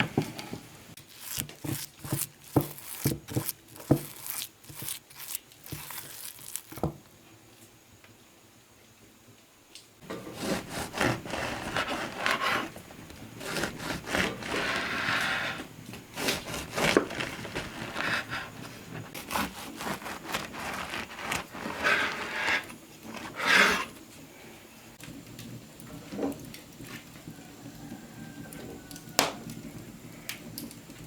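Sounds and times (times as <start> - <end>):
rubbing and scraping strokes: 1.0 - 6.9, 10.0 - 23.9.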